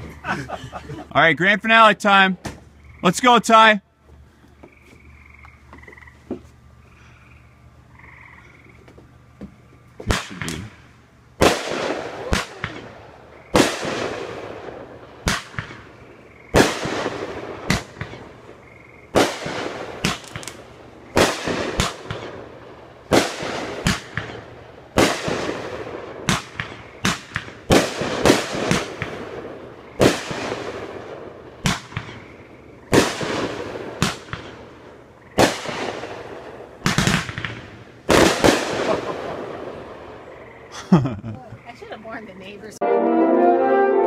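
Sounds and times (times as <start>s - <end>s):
firework cake bangs with crackle: 11.4s - 15.9s, 16.6s - 18.4s, 19.1s - 22.4s, 23.1s - 32.3s, 32.9s - 34.7s, 35.4s - 39.8s.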